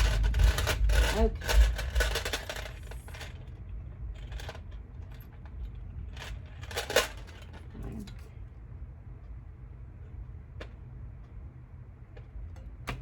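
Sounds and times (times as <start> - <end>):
hard objects clicking and scraping: 0.0 - 8.2.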